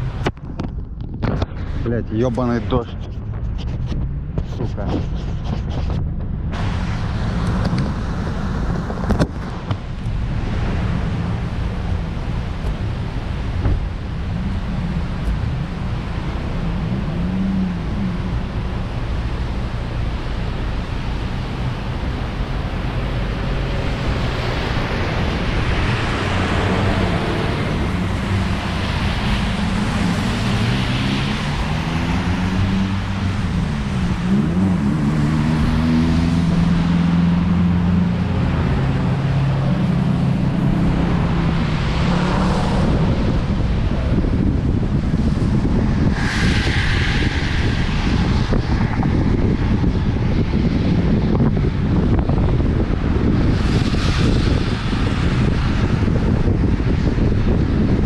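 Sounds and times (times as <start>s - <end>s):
car engine revving: 6.6s - 46.8s
tyre spray and wind rushing: 17.6s - 58.0s.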